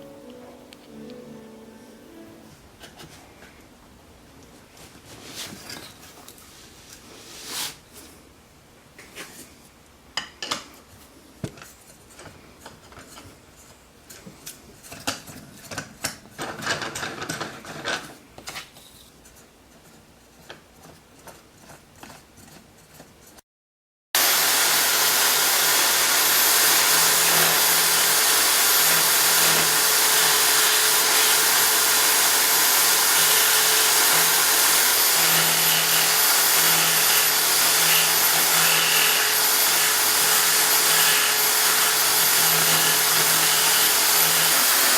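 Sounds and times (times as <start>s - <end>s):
electric drill running: 24.2s - 44.9s.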